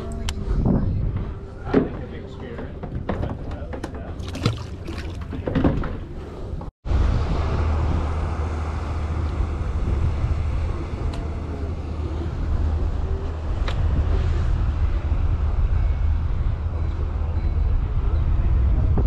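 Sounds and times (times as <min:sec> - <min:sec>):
wind on microphone: 0:00.0 - 0:02.0, 0:06.2 - 0:19.0
boat engine running: 0:04.0 - 0:18.7.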